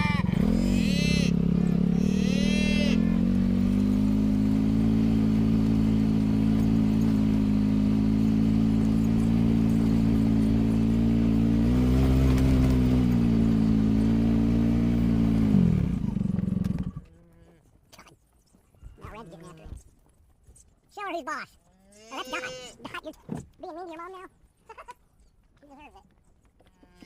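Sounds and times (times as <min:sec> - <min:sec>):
vehicle engine running: 0:00.0 - 0:17.1.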